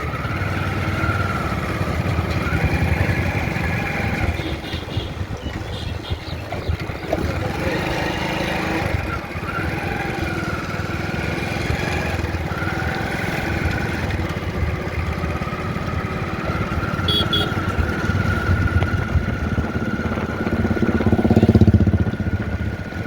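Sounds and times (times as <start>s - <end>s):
motor engine running with whine: 0.0s - 23.0s.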